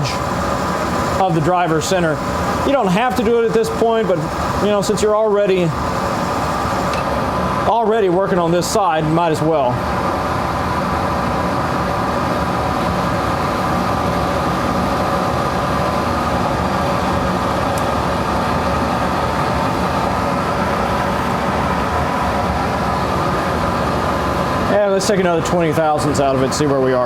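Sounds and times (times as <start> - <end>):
lathe cutting metal: 0.0 - 7.6
metal lathe running: 0.0 - 27.0.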